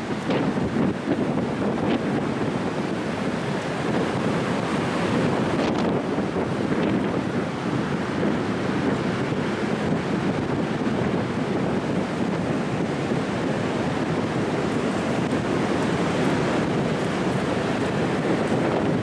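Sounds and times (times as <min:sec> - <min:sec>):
ocean surf breaking: 0:00.0 - 0:19.0
wind buffeting microphone: 0:00.0 - 0:19.0.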